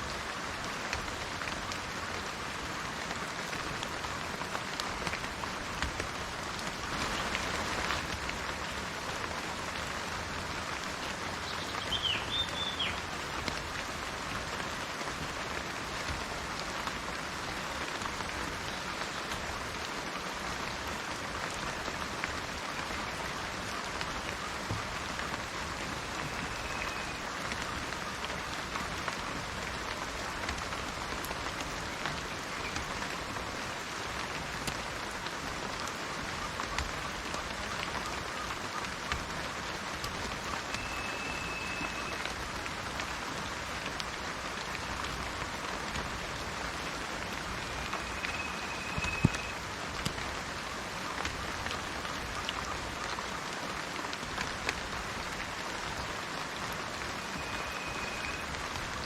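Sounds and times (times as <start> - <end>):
rain falling on foliage: 0.0 - 59.0
bird chirp: 11.5 - 13.0.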